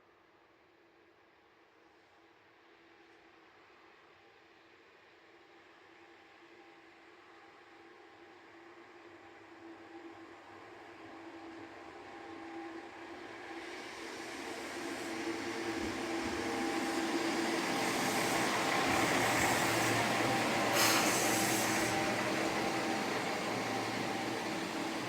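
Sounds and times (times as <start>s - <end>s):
diesel railcar engine and wheels: 7.0s - 25.0s
short hiss: 20.7s - 22.1s.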